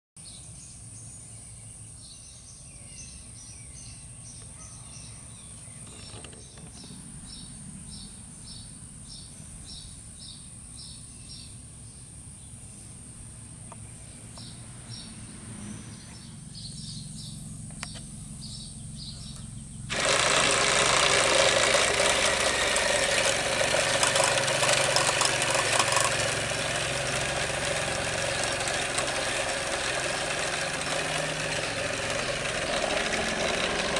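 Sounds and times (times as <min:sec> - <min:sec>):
faint bird chirping: 0:00.2 - 0:19.9
toy motor running with rattle: 0:05.8 - 0:06.8, 0:19.9 - 0:33.9.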